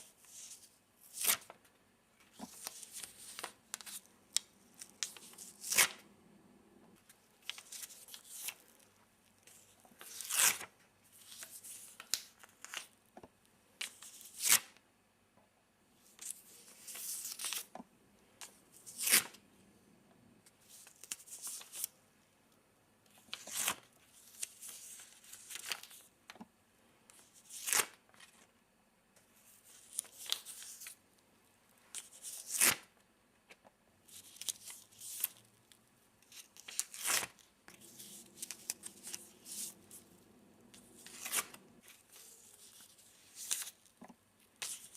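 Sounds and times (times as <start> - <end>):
paper crinkling: 34.1 - 43.9.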